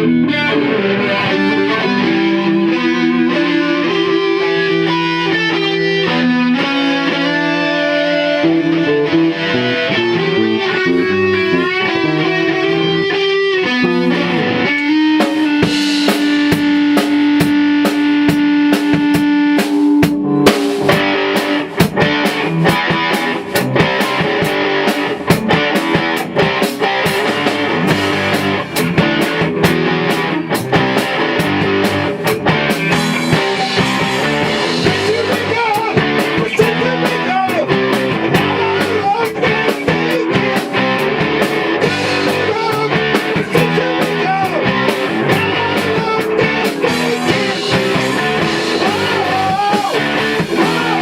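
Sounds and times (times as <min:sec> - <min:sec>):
drum kit: 0:00.0 - 0:51.0
electric guitar sustained notes: 0:00.0 - 0:51.0.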